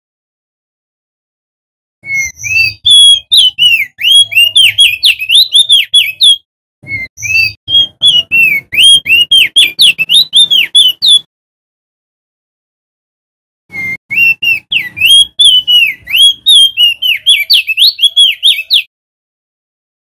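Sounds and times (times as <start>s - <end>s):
bird whistling song: 2.0s - 11.3s, 13.7s - 18.9s.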